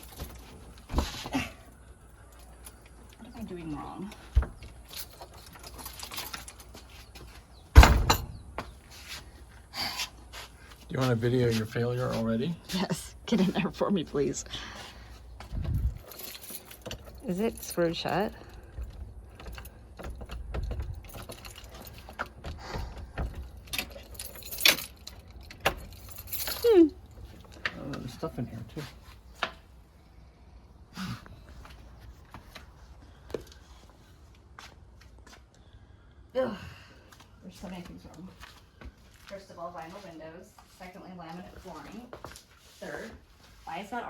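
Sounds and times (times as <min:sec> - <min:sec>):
keys jangling: 0:04.6 - 0:07.0, 0:15.7 - 0:27.7.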